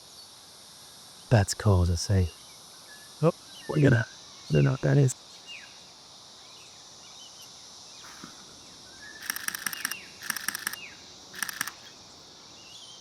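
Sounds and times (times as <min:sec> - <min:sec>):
insect drone: 0:00.0 - 0:13.0
camera shutter clicks: 0:09.2 - 0:10.8, 0:11.4 - 0:11.9.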